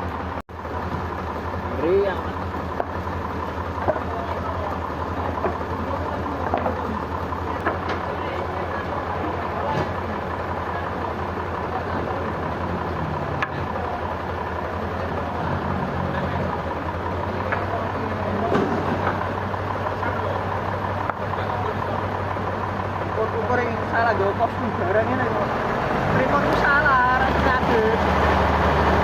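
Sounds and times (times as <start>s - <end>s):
sawmill machinery droning: 0.0s - 29.0s.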